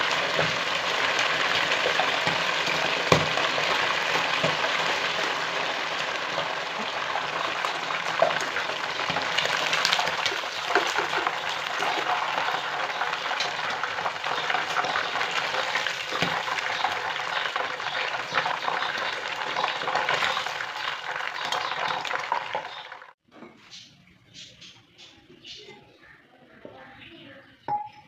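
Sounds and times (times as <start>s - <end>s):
food sizzling in hot oil: 0.0s - 23.2s.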